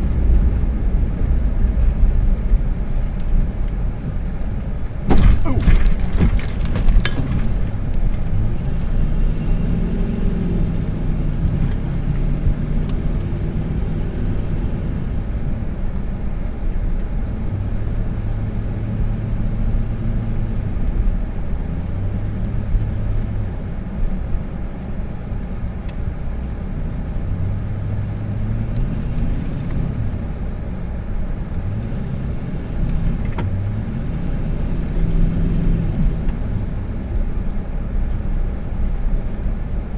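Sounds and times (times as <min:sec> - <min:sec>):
vehicle engine revving: 0:05.1 - 0:15.3, 0:31.6 - 0:37.5.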